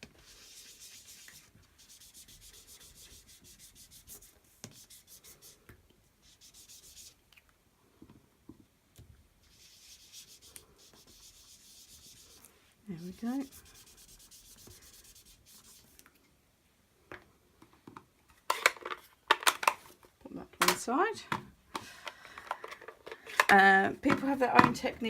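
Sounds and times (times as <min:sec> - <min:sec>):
sponge scrubbing on cardstock: 0:00.2 - 0:05.6, 0:09.4 - 0:16.0.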